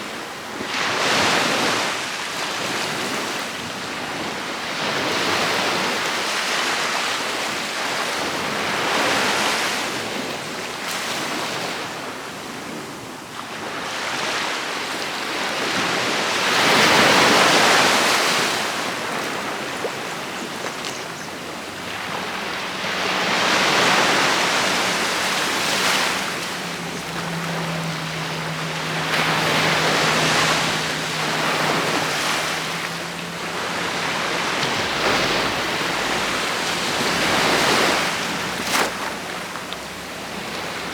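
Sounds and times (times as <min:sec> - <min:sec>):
ocean waves breaking on beach: 0:00.0 - 0:40.9
wind buffeting microphone: 0:19.4 - 0:40.8.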